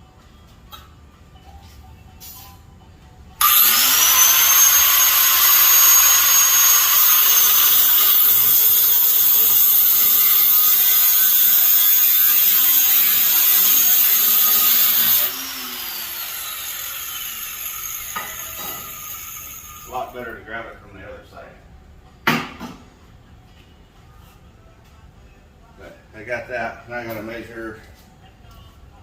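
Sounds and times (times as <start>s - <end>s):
angle grinder cutting steel: 3.4s - 20.1s.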